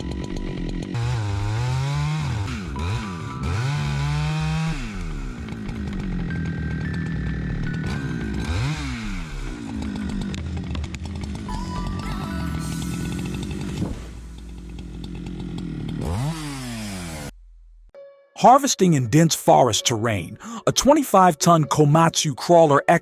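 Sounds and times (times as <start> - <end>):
chainsaw engine revving: 0.0 - 17.3
background music: 1.0 - 10.6, 11.4 - 15.1, 17.9 - 23.0.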